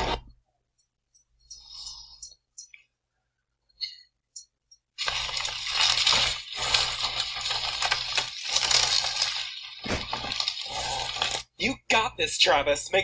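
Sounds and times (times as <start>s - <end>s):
bubble wrap crinkling: 5.0s - 11.5s.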